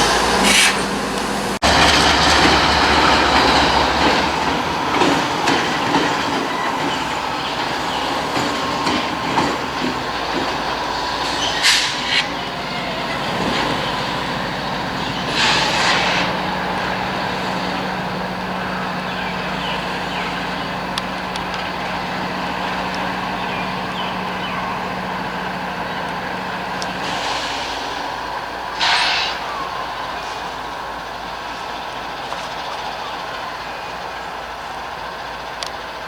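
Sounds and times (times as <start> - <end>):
air hiss bursts: 0.0 - 1.6, 11.2 - 12.4, 15.3 - 16.4, 28.8 - 29.4
freight train low hum: 0.0 - 36.0.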